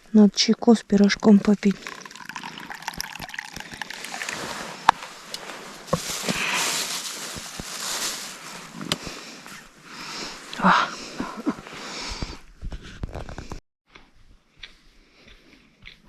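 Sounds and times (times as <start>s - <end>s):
tea pouring into cup: 1.7s - 8.3s.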